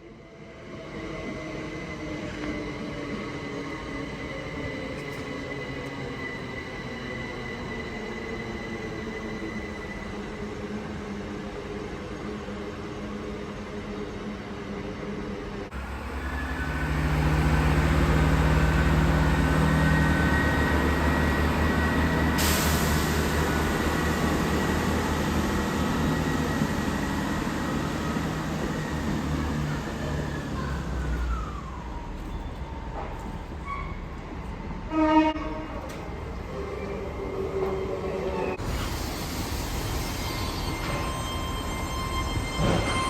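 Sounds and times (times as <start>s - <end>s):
train whine: 0.0s - 43.0s
train rumbling: 15.2s - 43.0s
train horn blast: 34.9s - 35.8s.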